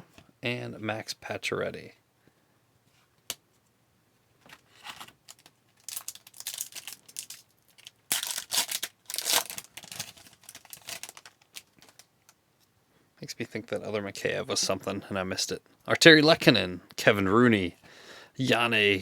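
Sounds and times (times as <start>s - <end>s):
card pack wrapper ripping and crinkling: 4.8s - 12.1s
wrapper click: 4.8s - 12.4s.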